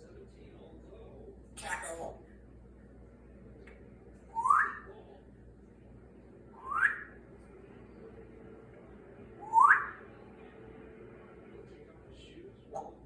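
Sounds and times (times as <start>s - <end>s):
parrot whistling: 4.3s - 4.9s, 6.6s - 7.2s, 9.4s - 10.0s.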